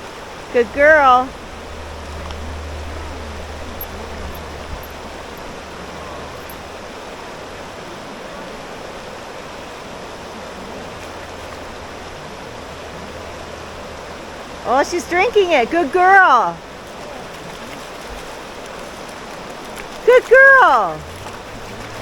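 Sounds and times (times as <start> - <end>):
river water rushing over rocks: 0.0 - 22.0
low rumble: 0.6 - 6.8.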